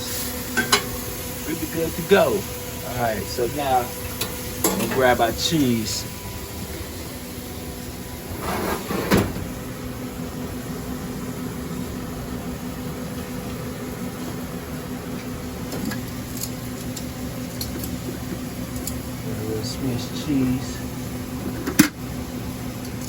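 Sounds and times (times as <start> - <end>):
exhaust hood fan humming: 0.0 - 23.0.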